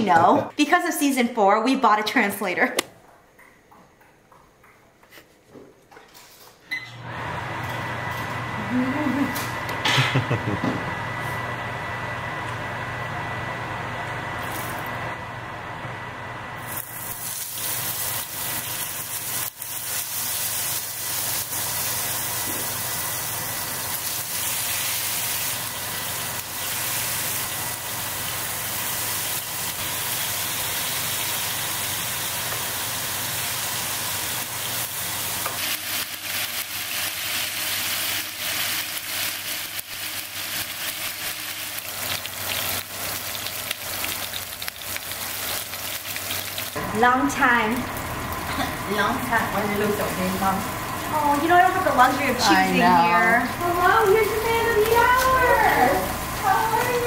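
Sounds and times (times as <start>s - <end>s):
meat sizzling in oil: 16.6s - 48.4s
spattering fat crackles: 16.7s - 31.5s, 33.7s - 48.9s.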